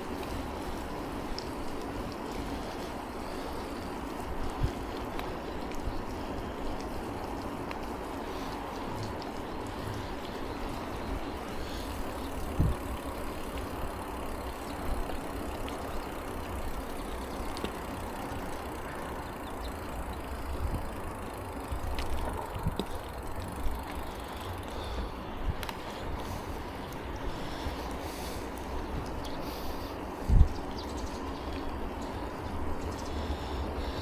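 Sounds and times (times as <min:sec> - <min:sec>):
bicycle tyres on road: 0:00.0 - 0:34.0
wind on microphone: 0:10.7 - 0:15.7, 0:20.2 - 0:23.9, 0:30.2 - 0:30.8.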